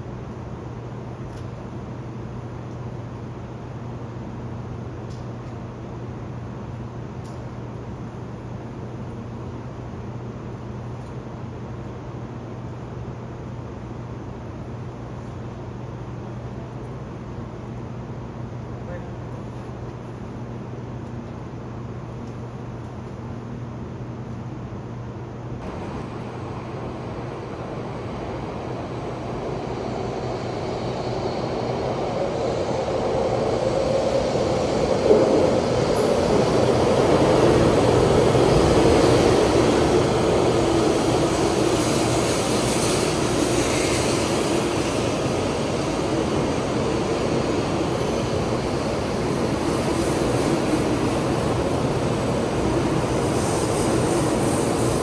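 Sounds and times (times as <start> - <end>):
train rushing into station: 25.5 - 55.0.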